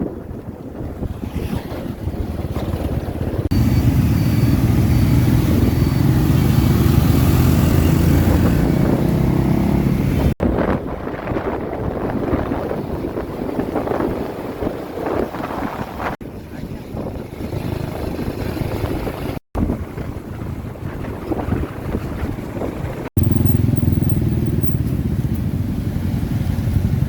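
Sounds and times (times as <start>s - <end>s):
wind buffeting microphone: 0.0s - 27.0s
motorbike engine running: 2.3s - 9.4s, 23.2s - 27.0s
faint high beeping: 3.5s - 6.4s, 23.2s - 24.8s.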